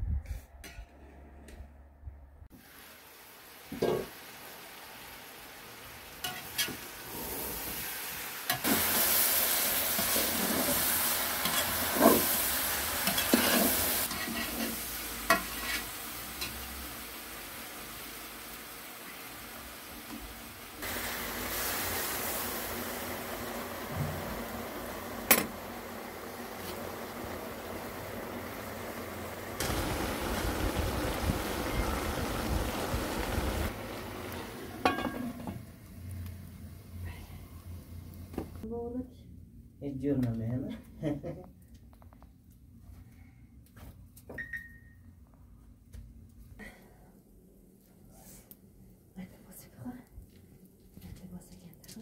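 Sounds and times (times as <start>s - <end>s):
food sizzling in a pan: 2.5s - 38.7s.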